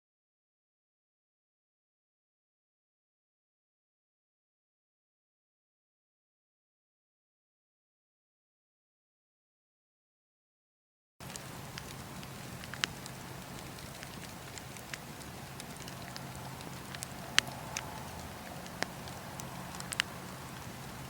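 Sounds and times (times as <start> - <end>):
wood fire crackling and popping: 11.2 - 21.0.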